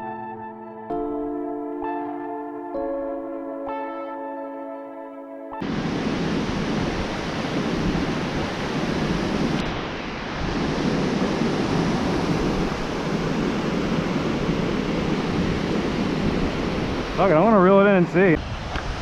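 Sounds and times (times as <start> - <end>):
ocean surf washing onto beach: 5.6 - 19.0.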